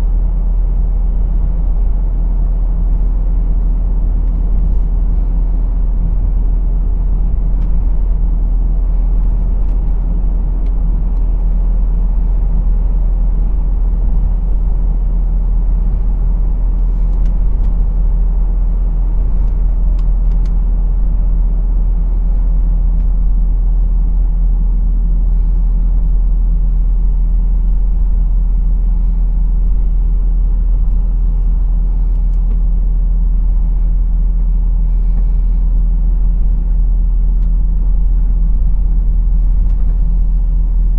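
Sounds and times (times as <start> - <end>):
lorry diesel engine: 0.0 - 40.9
road noise: 3.0 - 34.2.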